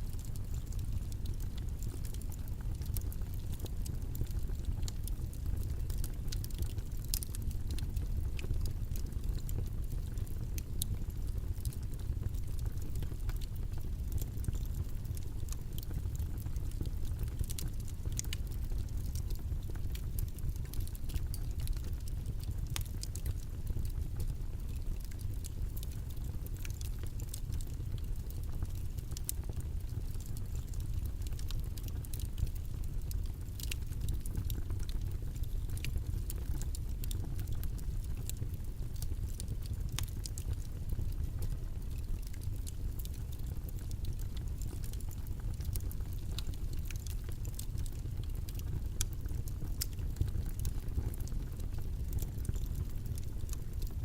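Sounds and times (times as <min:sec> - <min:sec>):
low rumbling background noise: 0:00.0 - 0:53.8
small clicks and ticks: 0:00.1 - 0:54.0.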